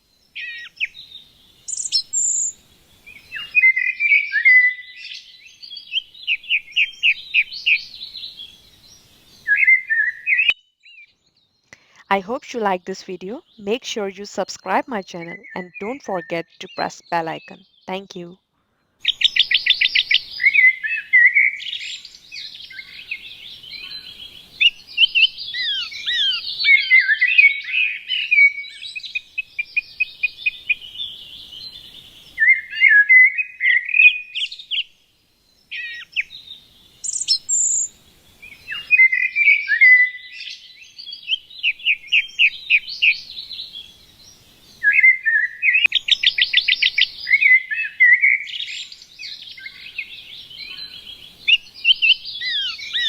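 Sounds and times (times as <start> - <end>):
songbirds chirping and trilling: 10.4 - 18.4, 39.8 - 53.0.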